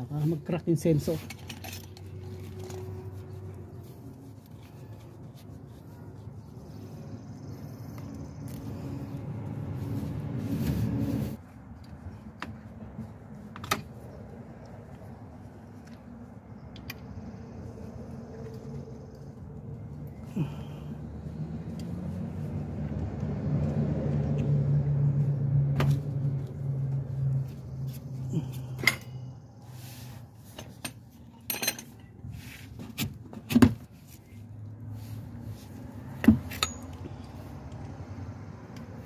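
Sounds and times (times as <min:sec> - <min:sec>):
low engine-like hum: 0:00.0 - 0:33.1, 0:33.8 - 0:39.0
metal tools clinking on metal: 0:00.6 - 0:03.0, 0:28.6 - 0:29.4, 0:30.5 - 0:32.2, 0:36.5 - 0:37.4.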